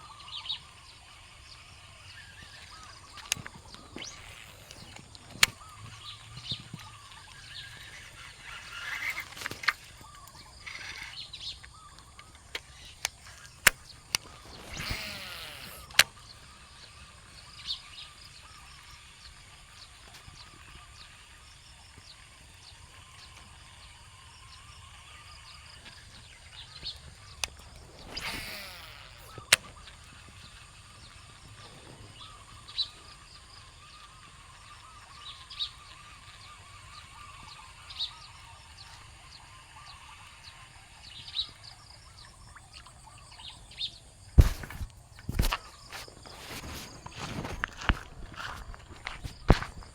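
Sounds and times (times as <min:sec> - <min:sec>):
bird chirping: 0:00.0 - 0:49.9
sharp clicks: 0:00.2 - 0:22.3, 0:24.6 - 0:32.0.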